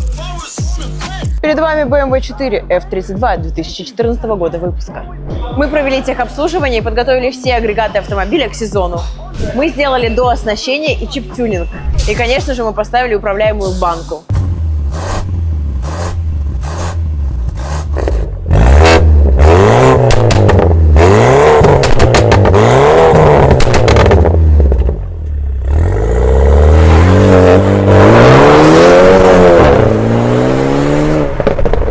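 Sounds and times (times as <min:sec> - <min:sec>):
exhaust crackles: 0:13.7 - 0:31.9
car exhaust revving: 0:13.9 - 0:31.9.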